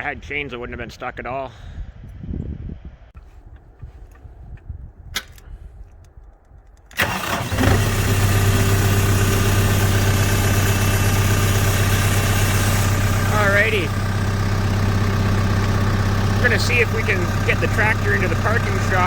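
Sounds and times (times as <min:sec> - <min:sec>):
diesel tractor engine idling: 0:07.0 - 0:19.0.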